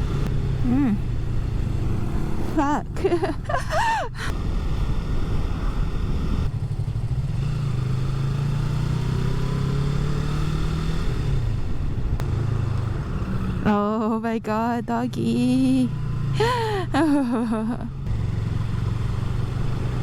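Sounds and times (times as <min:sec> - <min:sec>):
motorcycle engine running: 0:00.0 - 0:20.0
road and wind noise: 0:00.0 - 0:20.0.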